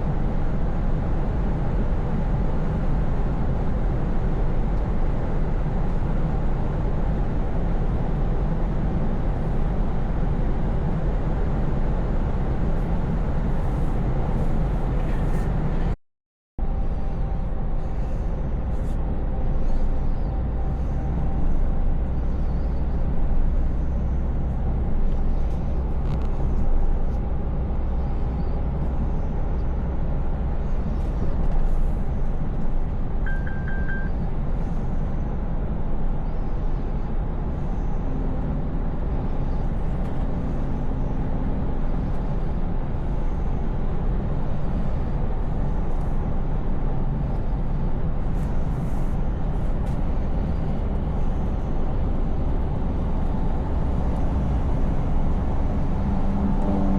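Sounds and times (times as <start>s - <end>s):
truck engine running: 16.6s - 56.9s
electronic triple beep: 33.3s - 34.2s
tyre and road noise: 38.4s - 56.9s.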